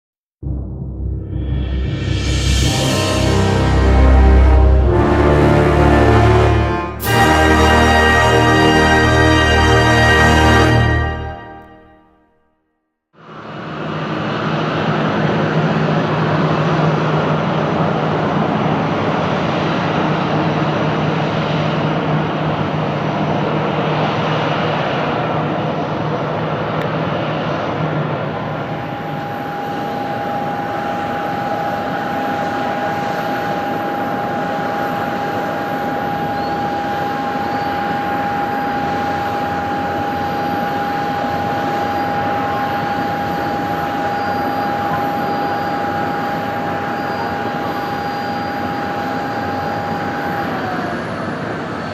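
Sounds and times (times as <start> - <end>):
high-pitched engine whine: 0.9 - 12.0, 13.2 - 51.9
jet engines roaring: 1.2 - 11.8, 13.4 - 51.9.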